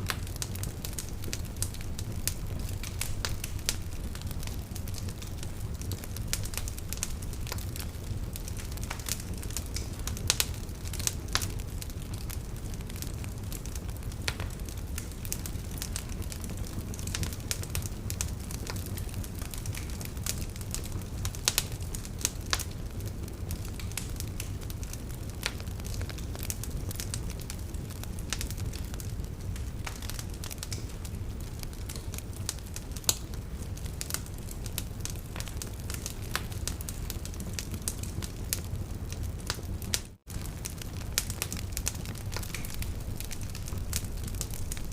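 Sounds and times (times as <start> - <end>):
steady low rumble: 0.0 - 9.0
wood fire crackling and popping: 0.0 - 44.9.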